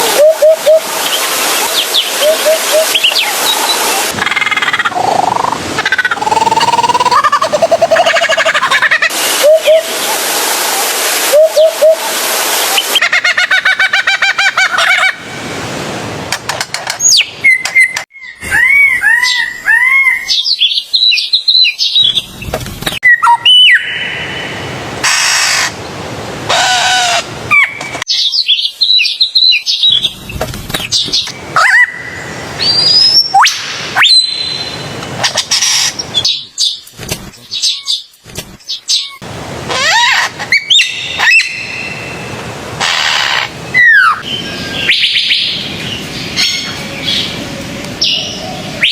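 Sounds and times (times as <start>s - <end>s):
bird calls: 1.1s - 9.8s.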